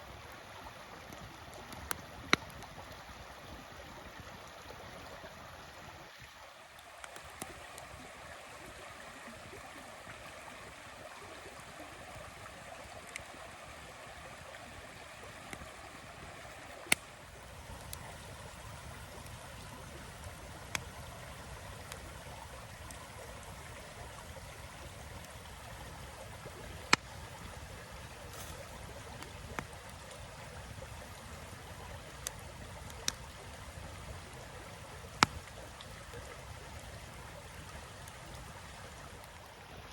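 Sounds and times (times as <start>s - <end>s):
wood fire crackling: 16.7s - 39.4s.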